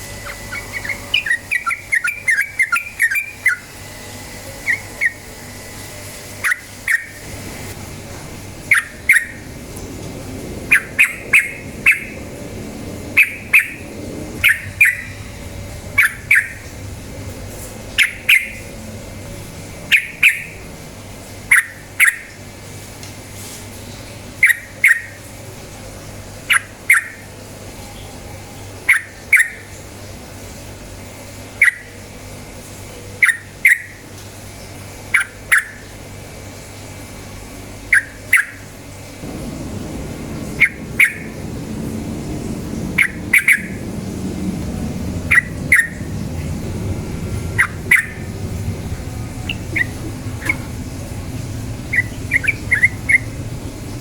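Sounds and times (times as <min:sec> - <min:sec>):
bird giving sharp calls: 0:06.4 - 0:07.2, 0:08.7 - 0:09.5, 0:10.7 - 0:12.2, 0:13.2 - 0:13.8, 0:14.4 - 0:15.2, 0:16.0 - 0:16.7, 0:18.0 - 0:18.7, 0:21.5 - 0:22.4, 0:37.9 - 0:38.6, 0:39.3 - 0:41.8, 0:42.8 - 0:44.0, 0:45.2 - 0:46.5, 0:47.5 - 0:53.6.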